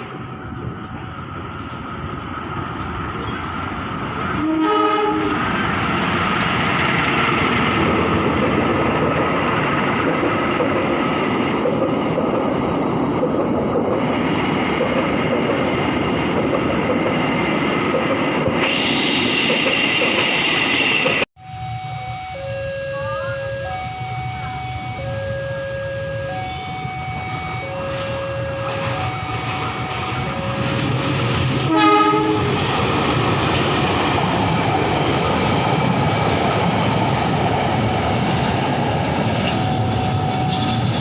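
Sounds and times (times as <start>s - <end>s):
train wheels rumbling on rails: 0.0s - 21.3s, 23.0s - 41.0s
train horn blast: 4.4s - 5.4s, 31.6s - 32.6s.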